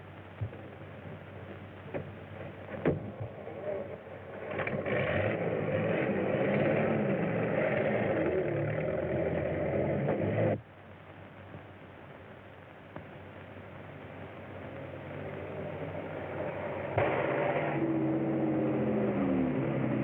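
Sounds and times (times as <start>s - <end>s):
car engine starting and running: 2.0s - 10.6s, 14.3s - 20.0s.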